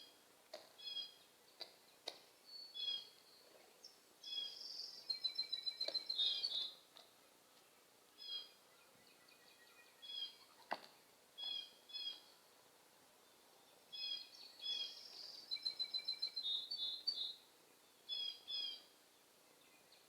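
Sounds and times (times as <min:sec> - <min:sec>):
blue jay calling: 0:04.2 - 0:06.8, 0:11.4 - 0:12.2.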